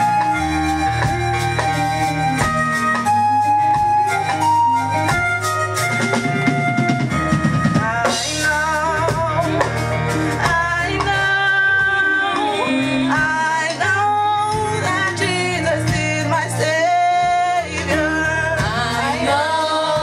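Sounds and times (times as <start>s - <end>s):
drum kit and bass: 0.0s - 20.0s
voices singing held notes: 14.8s - 20.0s.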